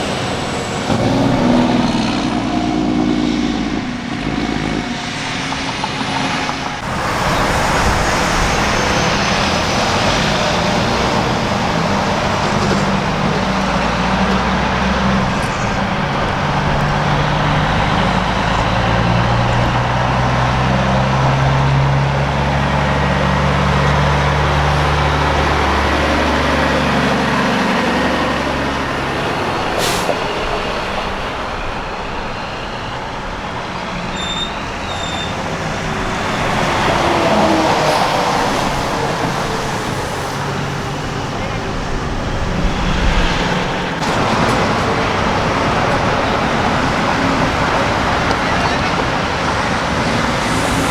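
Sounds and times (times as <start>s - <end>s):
diesel truck engine passing: 0.0s - 50.9s
road and traffic noise: 0.0s - 50.9s
sharp air hiss: 49.6s - 50.9s.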